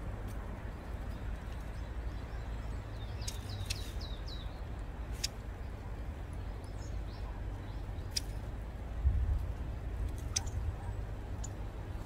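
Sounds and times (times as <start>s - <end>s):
bird sharp high ticks: 3.1s - 5.4s, 8.0s - 8.5s, 10.1s - 10.6s, 11.4s - 11.6s.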